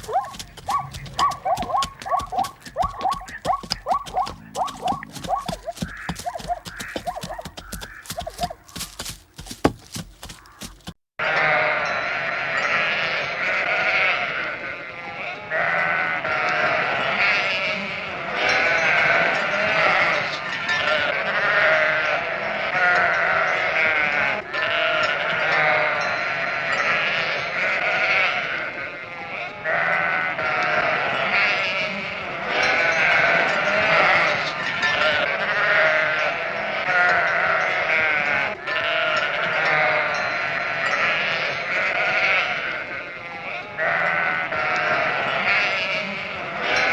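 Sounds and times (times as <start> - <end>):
chorus of animal cries: 0.0 - 8.7, 11.2 - 46.9.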